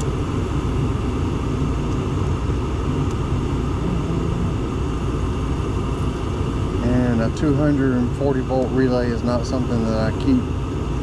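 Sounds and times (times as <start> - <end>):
gas furnace rumbling: 0.1 - 11.0.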